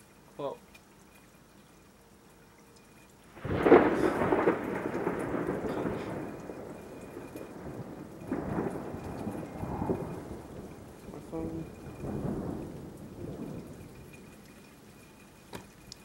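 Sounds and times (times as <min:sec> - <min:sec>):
thunder crack and rumble: 0:03.4 - 0:14.8.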